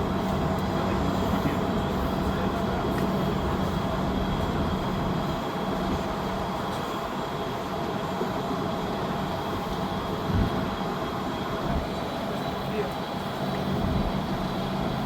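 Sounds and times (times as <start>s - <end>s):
wind buffeting microphone: 10.2s - 10.9s.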